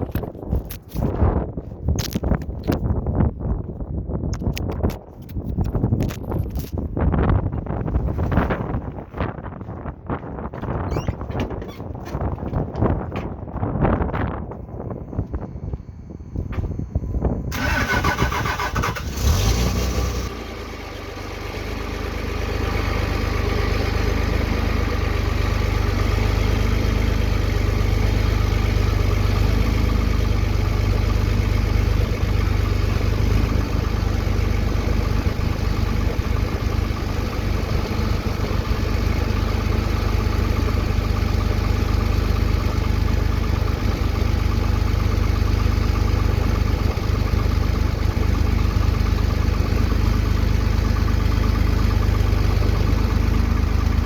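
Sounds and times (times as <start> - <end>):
vehicle engine idling unevenly: 12.5 - 54.0.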